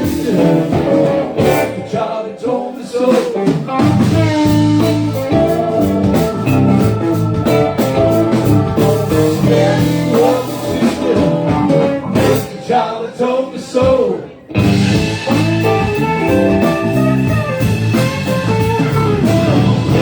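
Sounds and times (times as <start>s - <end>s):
person singing: 0.0s - 3.6s, 4.2s - 14.4s, 18.9s - 20.0s
guitar: 0.0s - 20.0s
steady low bass notes: 3.8s - 12.5s, 14.6s - 20.0s.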